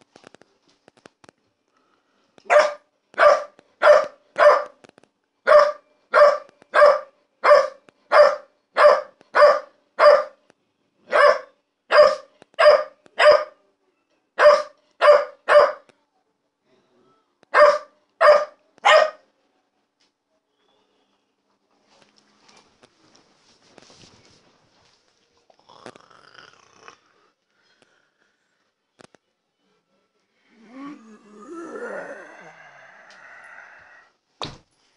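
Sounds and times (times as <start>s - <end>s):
puppy barking: 2.5s - 4.8s, 5.5s - 10.4s, 11.1s - 13.6s, 14.4s - 15.9s, 17.6s - 19.2s.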